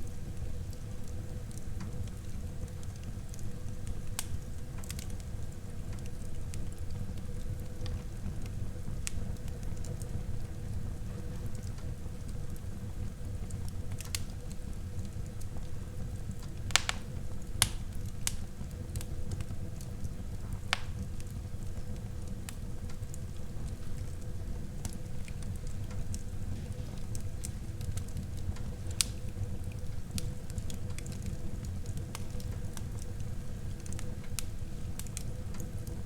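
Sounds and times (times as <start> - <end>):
wood fire crackling and popping: 0.0 - 36.0.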